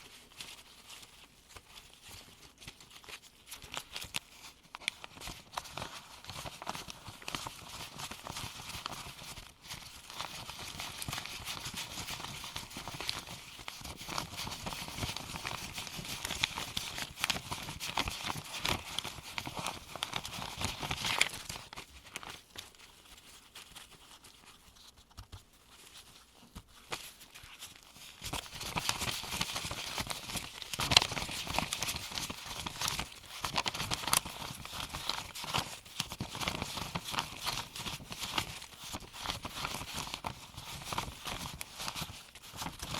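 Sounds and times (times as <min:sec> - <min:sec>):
paper bills flicking and rustling: 0:00.0 - 0:42.9.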